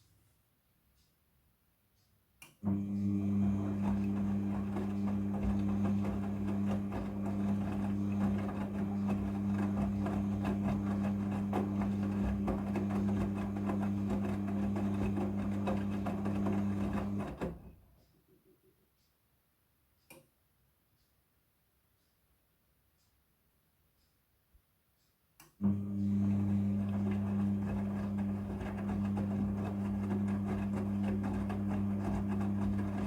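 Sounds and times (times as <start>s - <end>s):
washing machine drum humming: 2.7s - 17.9s, 25.6s - 33.0s.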